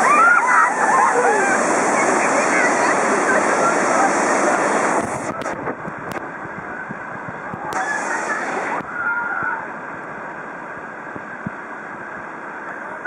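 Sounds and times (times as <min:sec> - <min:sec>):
water splashing: 0:00.0 - 0:12.4
river rapid rushing: 0:00.0 - 0:13.0.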